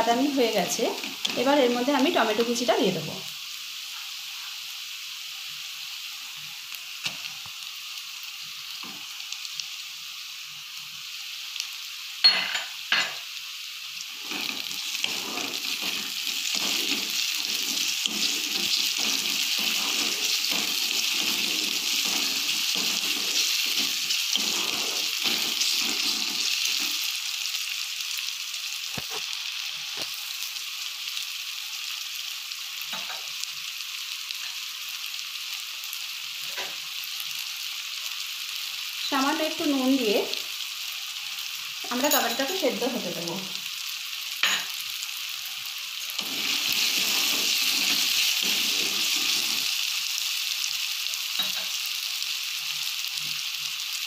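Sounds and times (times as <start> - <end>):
onion sizzling in hot oil: 0.0 - 54.0
wooden spatula stirring and scraping: 14.2 - 27.0.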